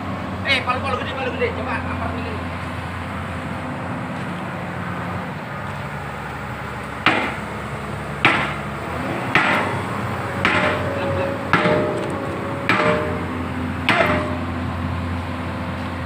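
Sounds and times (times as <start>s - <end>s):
diesel engine idling: 0.0s - 16.0s
sledgehammer striking steel: 7.1s - 7.6s, 8.2s - 15.2s.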